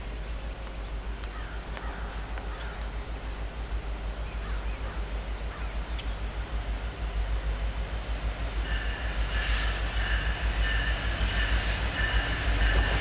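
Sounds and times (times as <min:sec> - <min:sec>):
bird calling: 0:01.3 - 0:03.0, 0:04.2 - 0:06.3.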